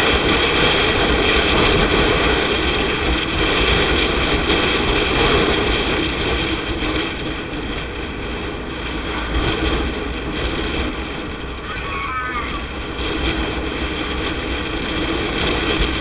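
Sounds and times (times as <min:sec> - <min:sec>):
wind rush: 0:00.1 - 0:16.0
road noise: 0:03.7 - 0:16.0.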